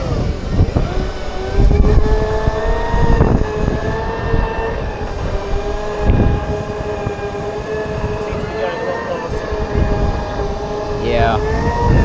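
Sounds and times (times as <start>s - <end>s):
electric motors whining: 0.0s - 12.0s
low rumble: 0.0s - 12.0s.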